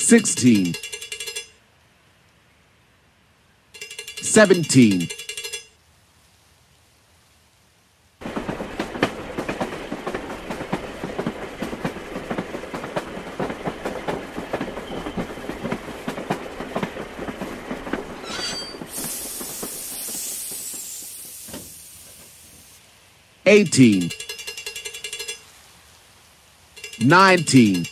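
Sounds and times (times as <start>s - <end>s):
train wheels clickety-clack: 0.0s - 1.5s, 3.8s - 5.7s, 8.2s - 22.5s, 23.6s - 25.4s, 26.8s - 27.9s
brief high squeal: 18.2s - 19.0s
loud hiss of steam: 18.6s - 22.8s.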